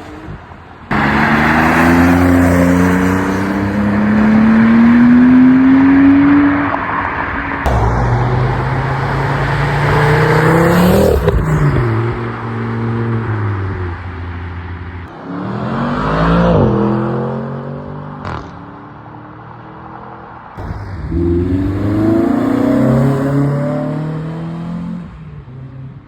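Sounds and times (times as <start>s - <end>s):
car engine accelerating hard: 20.6s - 25.1s.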